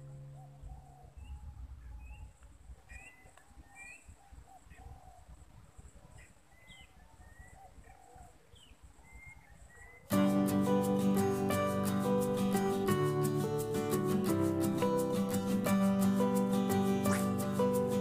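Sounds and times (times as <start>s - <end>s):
lower bird calls: 0.0s - 10.1s
birds chirping and whistling: 2.9s - 4.1s.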